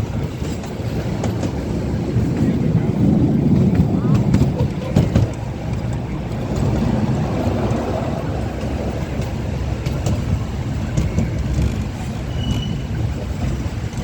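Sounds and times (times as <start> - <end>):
ride-on train rumbling: 0.0 - 14.0.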